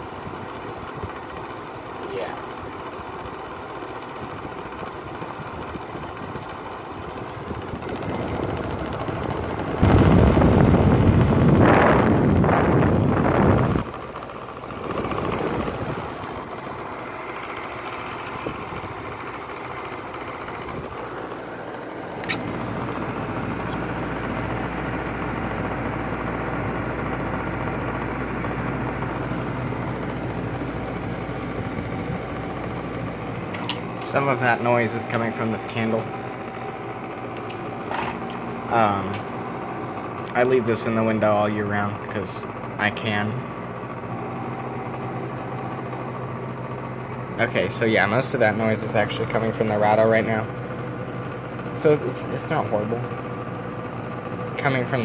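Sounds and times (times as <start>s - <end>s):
air conditioner humming: 5.6s - 55.0s
low hum: 6.5s - 55.0s
click: 22.2s - 22.5s.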